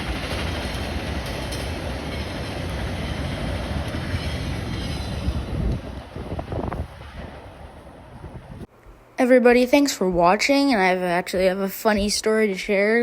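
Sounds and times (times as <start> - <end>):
train wheels rumbling on rail: 0.0 - 8.7.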